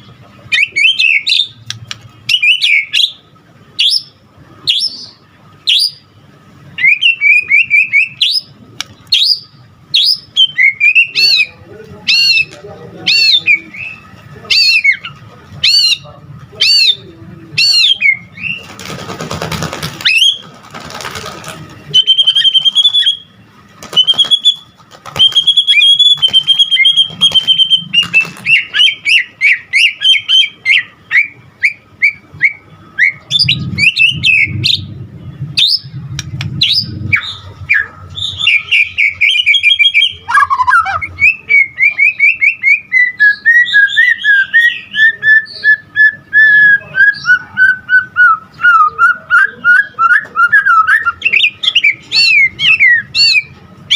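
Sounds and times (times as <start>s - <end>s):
bird singing whistled notes: 4.7s - 6.0s, 6.8s - 8.5s, 9.1s - 12.5s, 21.9s - 34.9s, 35.6s - 36.0s, 36.6s - 53.5s.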